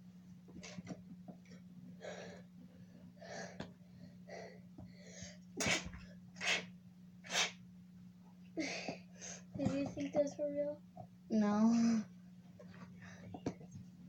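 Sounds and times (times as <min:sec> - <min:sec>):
girl sneezing: 0:05.6 - 0:06.7.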